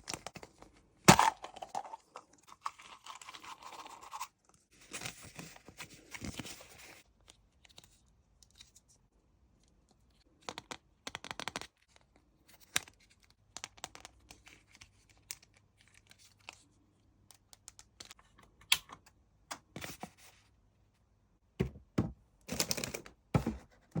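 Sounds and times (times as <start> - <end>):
plastic capsule clicks and crinkles: 10.3 - 19.1.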